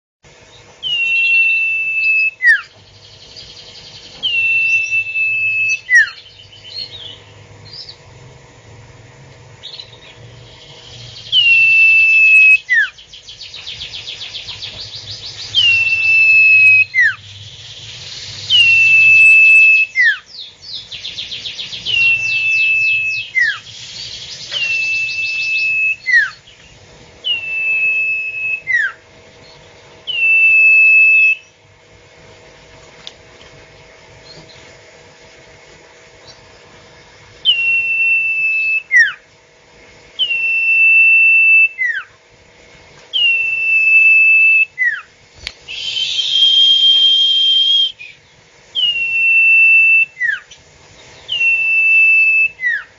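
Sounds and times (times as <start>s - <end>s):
bird calling whistles: 0.8s - 8.0s, 9.6s - 29.0s, 30.0s - 31.6s, 37.4s - 39.2s, 40.2s - 42.2s, 43.1s - 52.9s.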